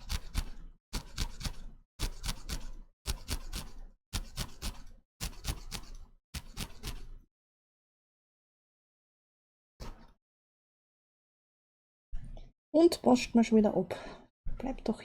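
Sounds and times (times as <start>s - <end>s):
sharp clicks and snips: 0.0s - 7.2s.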